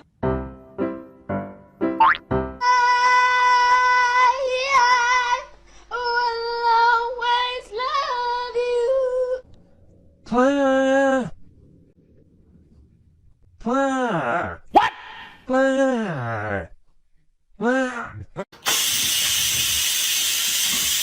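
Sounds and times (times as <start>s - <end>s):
high voice singing or howling: 10.2s - 11.4s.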